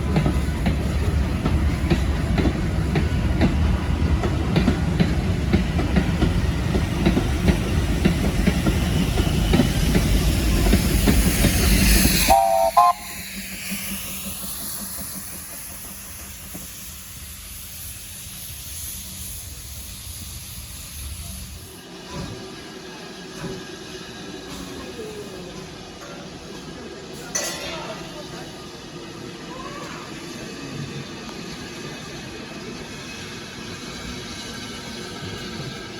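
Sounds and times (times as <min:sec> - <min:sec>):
distant train rumble: 0:00.0 - 0:27.1
steam train passing: 0:00.0 - 0:35.9
train whistle blast: 0:12.2 - 0:13.2.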